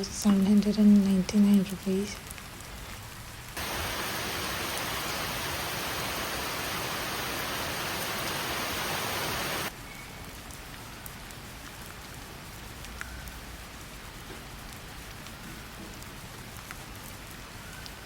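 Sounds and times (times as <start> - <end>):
heavy rain: 2.2 - 9.7.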